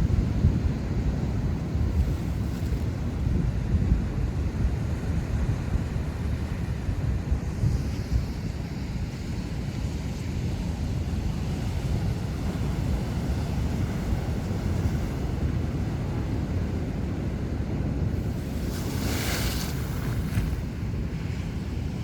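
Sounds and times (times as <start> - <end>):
wind buffeting microphone: 10.4 - 22.0
ocean waves breaking: 11.7 - 22.0.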